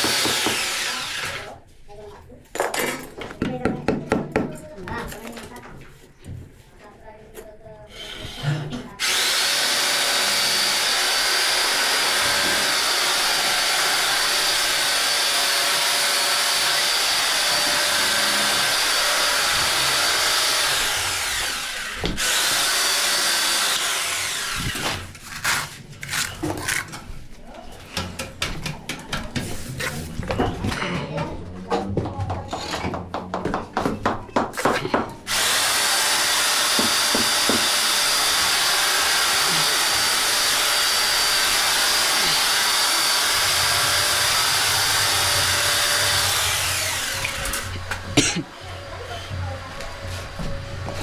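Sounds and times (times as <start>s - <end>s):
handheld power tool running: 0.0s - 1.6s, 9.0s - 25.2s, 35.3s - 51.0s.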